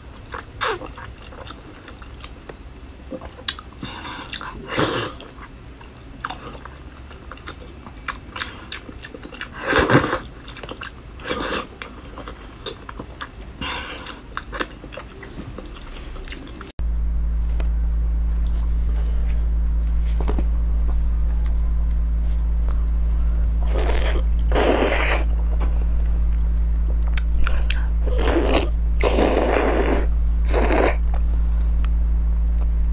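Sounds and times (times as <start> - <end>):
steady low hum: 0.0 - 32.9
chewing and biting food: 3.1 - 16.7.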